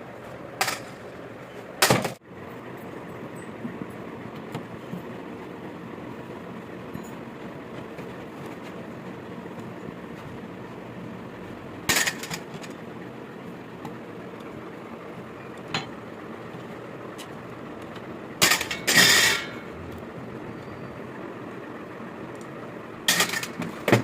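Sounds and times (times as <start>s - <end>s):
steady background noise: 0.0s - 24.0s
metal tools clinking and knocking: 18.4s - 19.5s.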